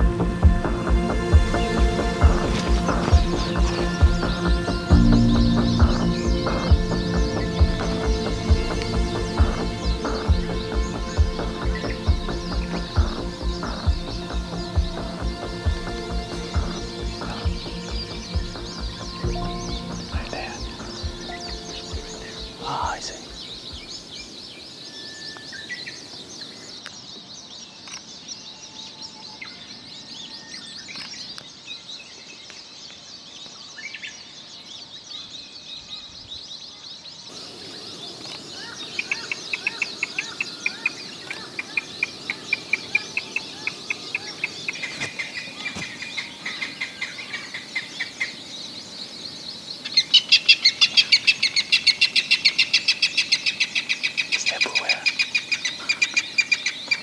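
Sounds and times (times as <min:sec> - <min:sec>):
rail calling repeated notes: 0:00.0 - 0:24.4
forest birds chirping: 0:00.0 - 0:57.0.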